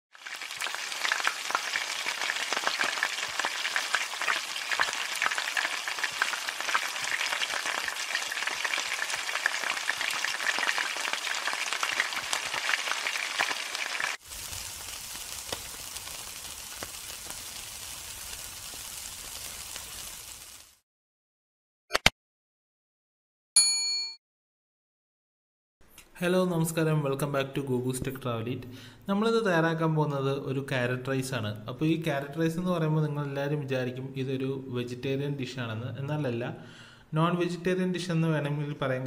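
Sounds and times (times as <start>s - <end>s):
food frying in hot oil: 0.1s - 20.8s
meat sizzling on a grill: 0.1s - 20.8s.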